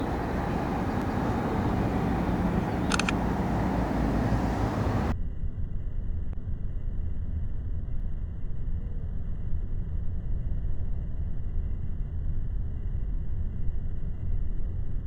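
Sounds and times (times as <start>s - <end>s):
airplane engine rumble: 0.0s - 5.1s.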